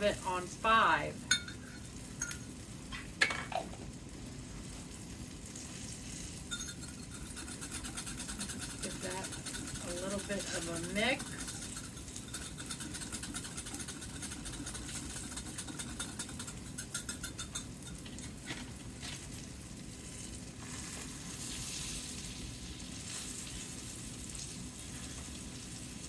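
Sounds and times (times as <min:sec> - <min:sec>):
tofu sizzling in a skillet: 0:00.8 - 0:08.8, 0:17.7 - 0:26.0
stirring clicks: 0:06.5 - 0:18.6.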